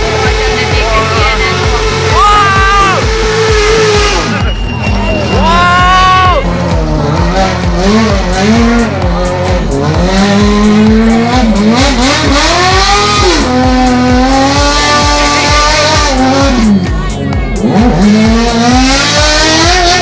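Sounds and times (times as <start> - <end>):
motorcycle engine at high revs: 0.0 - 5.4, 6.4 - 20.0
music with a steady beat: 0.0 - 20.0
tyre squeal: 4.3 - 6.4.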